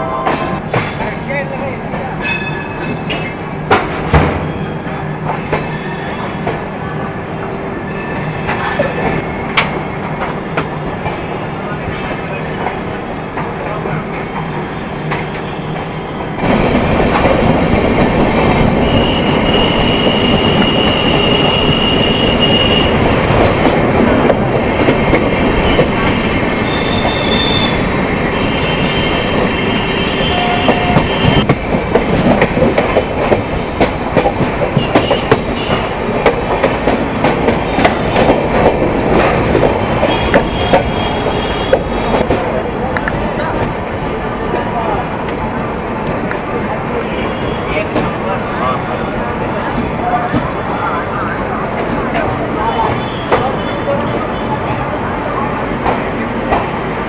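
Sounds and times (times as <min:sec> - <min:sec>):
train wheels clickety-clack: 0:00.2 - 0:06.7, 0:08.4 - 0:48.4, 0:51.4 - 0:57.0
high wheel squeals: 0:26.6 - 0:27.8.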